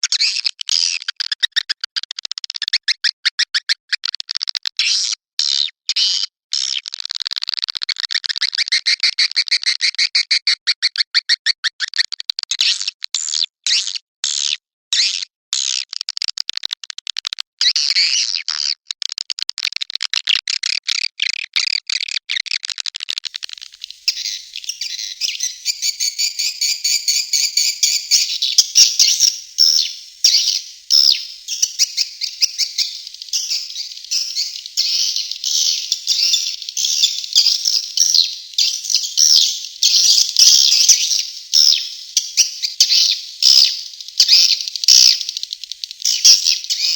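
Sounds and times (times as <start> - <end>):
swiftlets twittering: 23.3 - 46.9.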